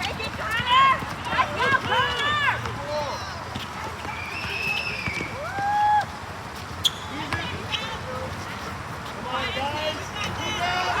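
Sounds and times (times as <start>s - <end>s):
sneakers squeaking on gym floor: 3.5s - 5.3s, 6.8s - 7.6s.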